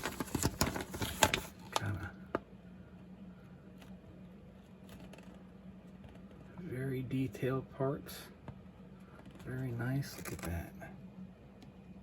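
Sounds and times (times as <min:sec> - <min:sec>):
plastic bag rustling: 0:00.0 - 0:01.9
faint steady low hum: 0:00.0 - 0:12.0.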